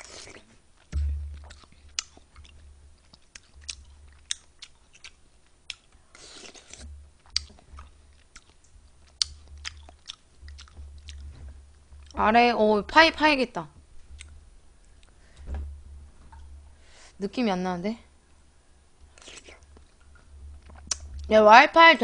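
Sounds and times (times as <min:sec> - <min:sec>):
chewing and biting: 0:00.0 - 0:11.3
mouth clicks and smacks: 0:00.0 - 0:11.3, 0:19.1 - 0:21.3.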